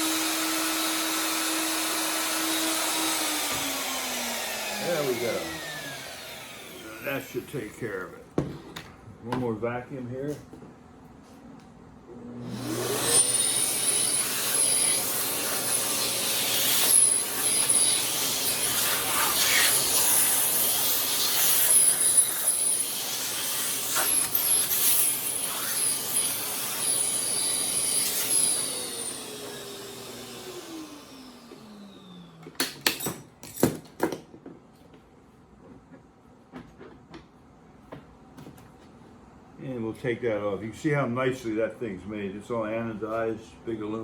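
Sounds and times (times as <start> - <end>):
motor winding down whine: 0.0 - 7.4
shop vacuum running: 0.0 - 8.6, 11.2 - 33.1.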